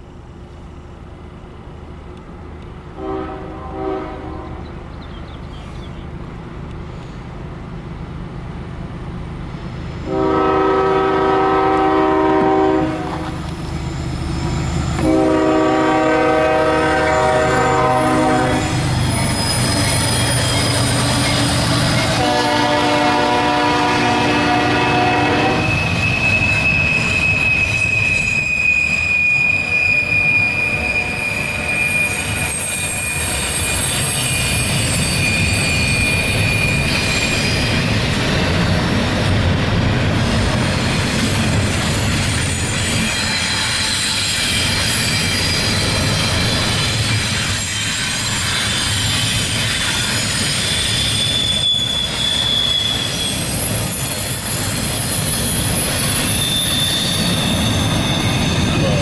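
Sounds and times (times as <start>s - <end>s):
diesel locomotive rumble: 0.0s - 59.0s
train air horn blasts: 3.0s - 4.7s, 10.1s - 13.4s, 15.0s - 19.0s, 22.0s - 25.9s, 29.6s - 34.6s
high wheel squeal: 11.4s - 39.0s, 40.6s - 59.0s.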